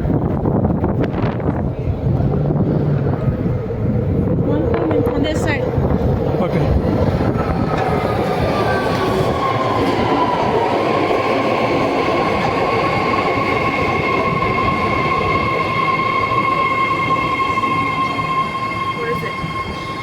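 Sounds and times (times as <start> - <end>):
train wheels rolling: 0.0 - 20.0
train high-pitched whine: 0.3 - 20.0.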